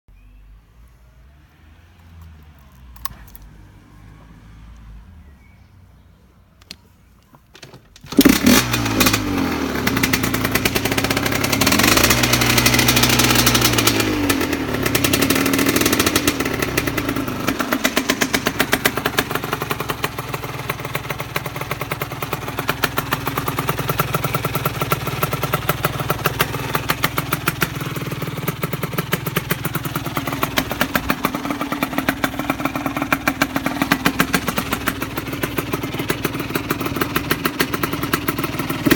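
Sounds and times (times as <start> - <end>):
two-stroke engine revving and idling: 8.0 - 38.9.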